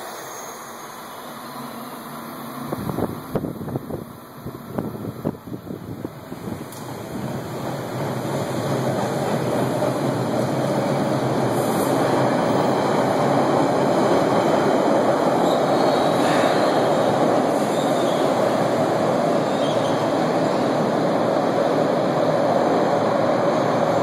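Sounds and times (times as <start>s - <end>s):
high wheel squeals: 0.0s - 2.0s, 15.4s - 18.4s
train wheels rumbling on rails: 0.0s - 24.0s.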